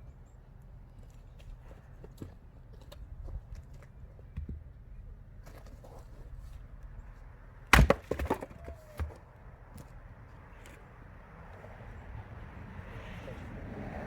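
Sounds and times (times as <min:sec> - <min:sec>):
firewood knocking and clattering: 0:07.7 - 0:09.1
sharp wooden crack: 0:07.7 - 0:09.2.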